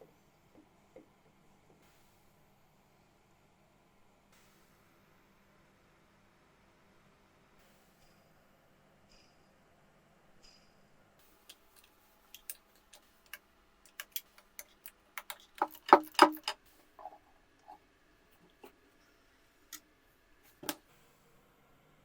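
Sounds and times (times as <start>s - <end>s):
hand tools and metal parts knocking: 11.5s - 17.8s.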